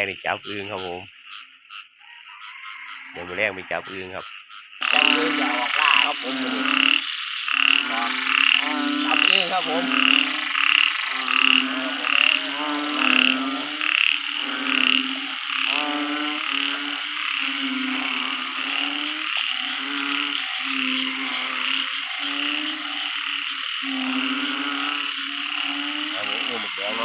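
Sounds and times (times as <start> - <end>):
frog chorus: 0.0 - 27.0
nearby frog calling loudly: 0.0 - 27.0.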